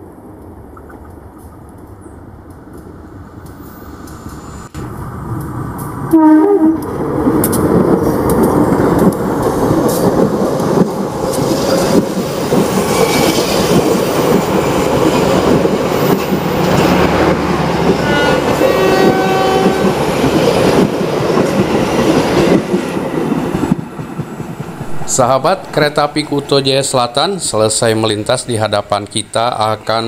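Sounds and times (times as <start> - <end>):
diesel locomotive passing: 0.0 - 30.0
train wheels clattering on rails: 6.8 - 26.6.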